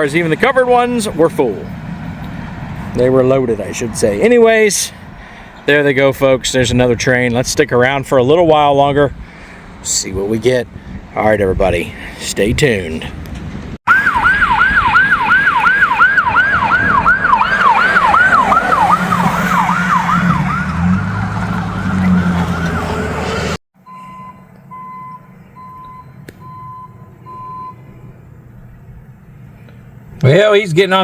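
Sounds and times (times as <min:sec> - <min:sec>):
vehicle engine: 0:00.0 - 0:07.0, 0:13.1 - 0:31.0
emergency siren yelping: 0:13.9 - 0:25.9
vehicle backup alarm beeping: 0:23.8 - 0:28.1.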